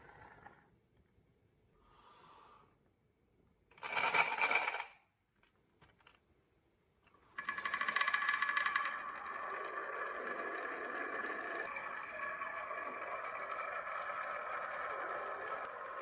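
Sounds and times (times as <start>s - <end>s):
marbles rattling on wooden run: 3.8s - 4.9s, 7.4s - 16.0s.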